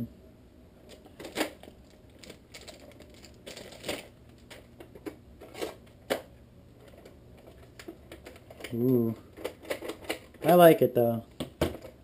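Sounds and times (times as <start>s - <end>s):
packaging rustling: 0.9s - 4.8s.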